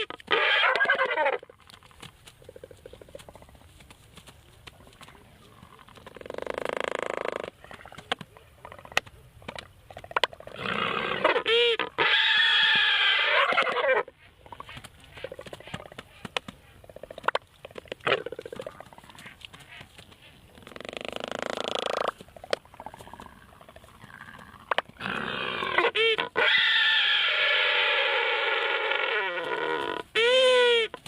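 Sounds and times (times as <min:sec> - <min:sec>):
albatrosses calling: 0:18.0 - 0:31.0.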